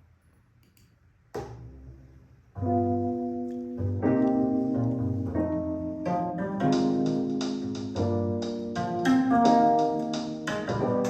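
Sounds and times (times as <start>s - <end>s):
instrumental music over speakers: 2.6s - 11.0s.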